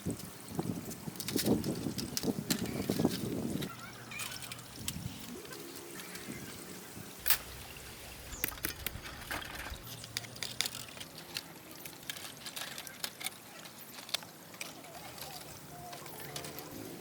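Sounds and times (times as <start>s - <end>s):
water trickling and splashing: 4.6s - 12.2s
sharp clicks and ticks: 7.2s - 13.4s.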